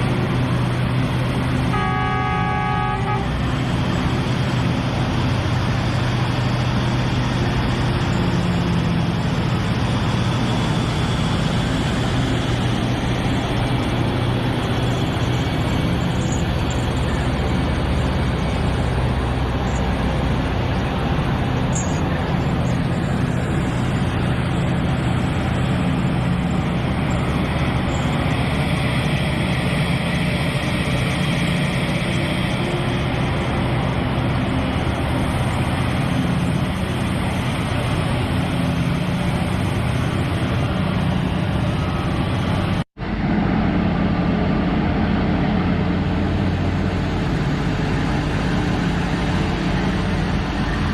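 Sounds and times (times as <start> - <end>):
heavy engine running: 0.0 - 50.9.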